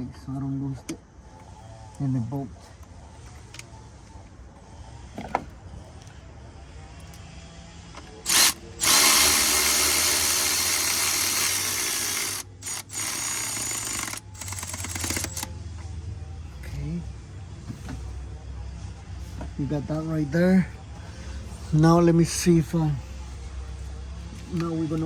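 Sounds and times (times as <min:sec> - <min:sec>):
power driver spinning: 0:08.2 - 0:15.5.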